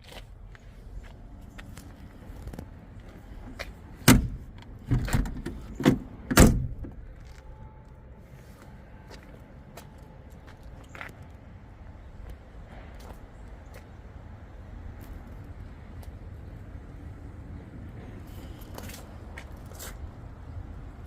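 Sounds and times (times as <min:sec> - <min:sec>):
car door clunks and latch knocks: 0:04.0 - 0:07.0.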